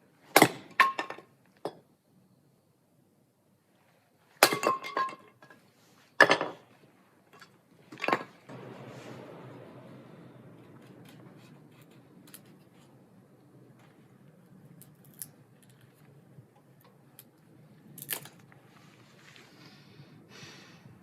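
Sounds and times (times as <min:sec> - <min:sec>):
soft steady rushing noise: 0:07.7 - 0:21.0.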